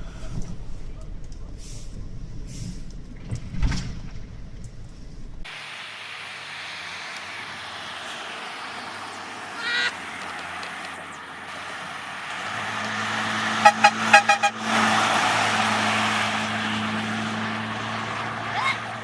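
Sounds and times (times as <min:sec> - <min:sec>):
engine hum: 0:00.0 - 0:19.0
vehicle horn tooting: 0:13.5 - 0:14.8.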